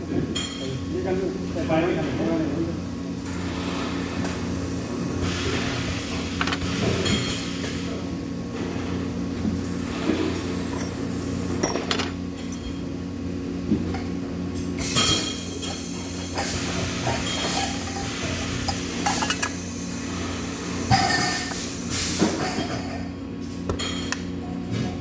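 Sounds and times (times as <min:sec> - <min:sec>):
steady machine hum: 0:00.0 - 0:25.0
metal parts clinking and knocking: 0:10.6 - 0:12.6.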